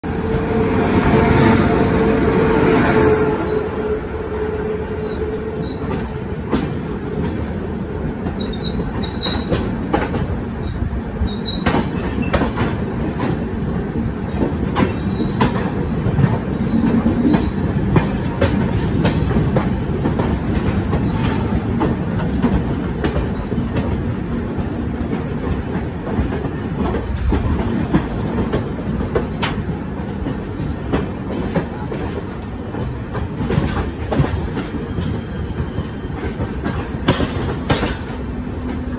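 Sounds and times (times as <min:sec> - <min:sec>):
locomotive hum: 0:00.0 - 0:38.9
train wheels rumbling on rail: 0:00.0 - 0:38.9
wheels clacking over rail joints: 0:08.2 - 0:38.9.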